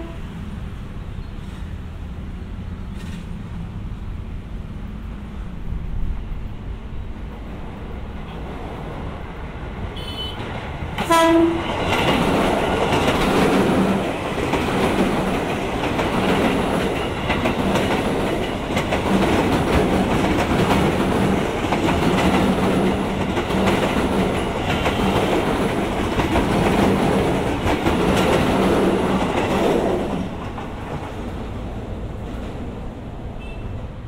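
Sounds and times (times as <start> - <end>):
train wheels rumbling on rails: 0.0 - 34.0
clickety-clack over rail joints: 2.9 - 3.6, 7.4 - 33.6.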